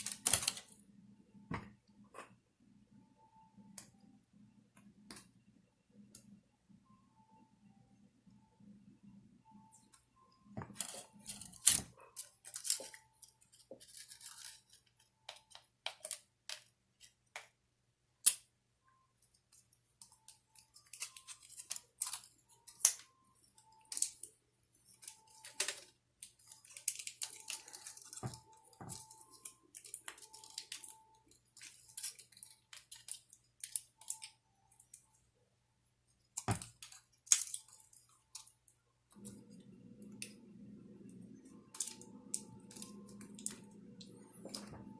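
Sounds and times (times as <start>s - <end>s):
tape clicks and crinkles: 0.0s - 0.8s, 10.6s - 17.5s, 19.5s - 35.1s, 36.3s - 39.4s, 41.7s - 44.9s.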